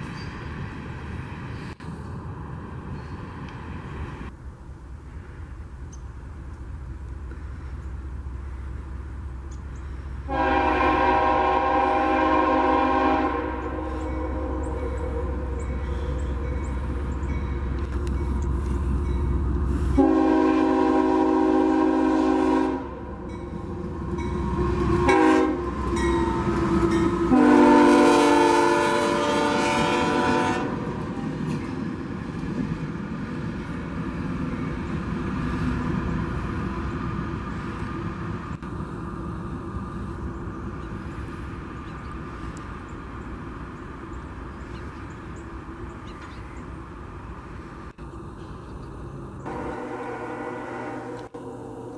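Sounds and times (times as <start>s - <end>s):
passing train rumble: 0.0s - 51.9s
locomotive air horn blasts: 10.2s - 16.6s, 19.8s - 23.6s, 24.2s - 31.0s, 49.4s - 51.4s.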